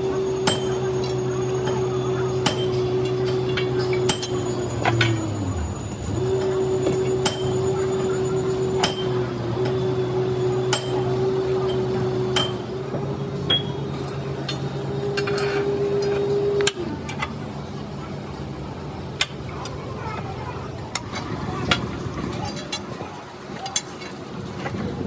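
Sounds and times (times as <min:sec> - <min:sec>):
machine motor humming: 0:00.0 - 0:19.0
sharp metallic clinks: 0:00.2 - 0:12.8.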